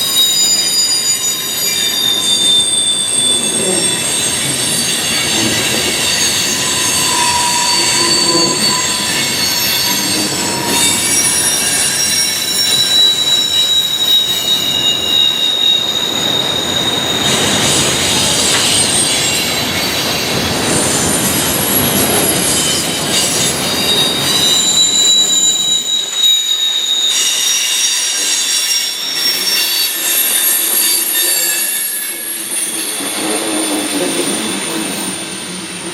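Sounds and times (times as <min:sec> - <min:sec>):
rumble of train wheels: 0:00.0 - 0:35.9
train wheels squealing on rails: 0:00.0 - 0:35.9.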